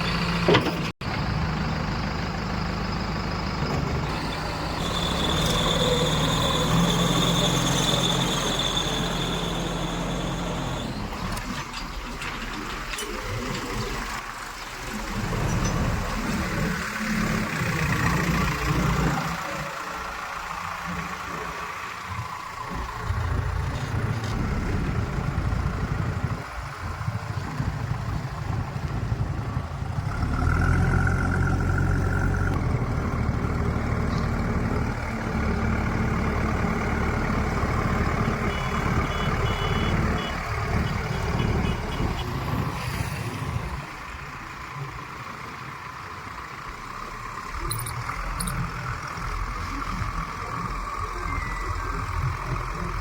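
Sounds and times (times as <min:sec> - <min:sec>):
heavy diesel engine running: 0:00.0 - 0:11.6, 0:12.8 - 0:53.0
quick beeps: 0:47.6 - 0:48.6.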